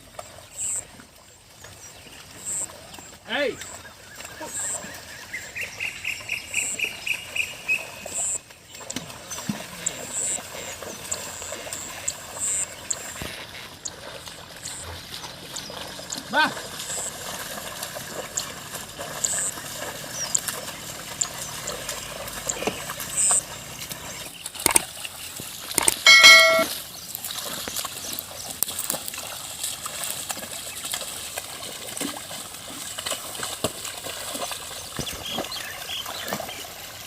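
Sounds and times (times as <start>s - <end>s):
water and mud splashing: 0.0s - 37.0s
short high-pitched call: 26.0s - 26.7s.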